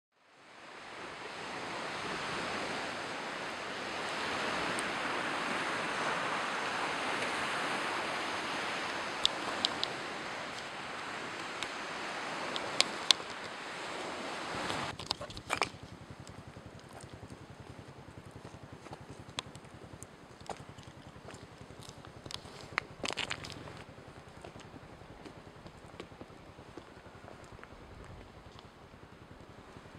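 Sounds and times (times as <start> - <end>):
steady rushing noise: 0.4 - 29.9
sharp clicks: 9.2 - 10.7.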